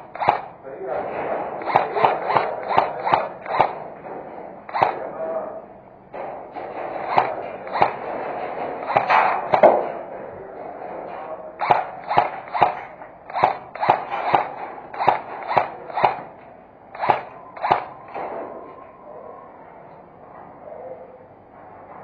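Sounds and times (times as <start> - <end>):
airsoft gun shots: 0.0 - 0.6, 1.2 - 5.2, 6.2 - 10.1, 11.1 - 18.4.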